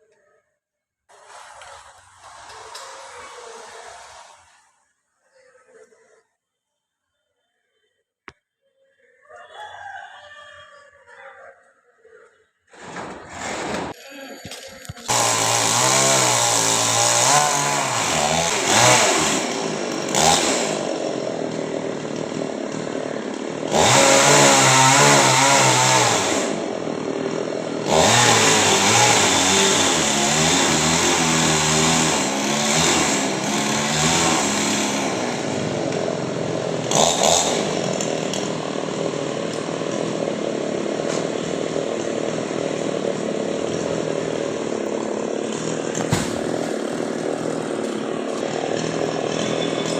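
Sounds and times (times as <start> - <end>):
chainsaw cutting wood: 12.8 - 49.9.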